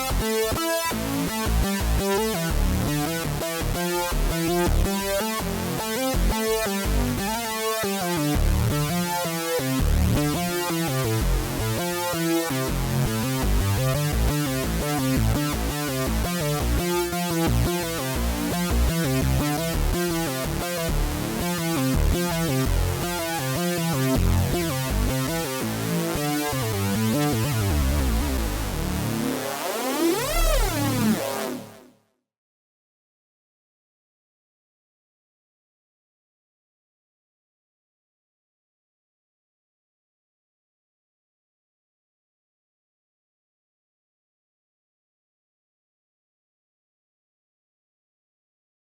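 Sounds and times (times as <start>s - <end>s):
synthesizer bass line: 12.8s - 31.9s
synthesizer rhythmic pattern: 15.5s - 31.8s.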